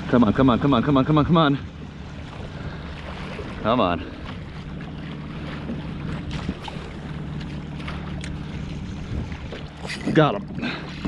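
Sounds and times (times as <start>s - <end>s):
steady low hum: 0.0s - 11.0s
water sloshing around kayak: 0.0s - 11.0s
wind on microphone: 8.4s - 11.0s.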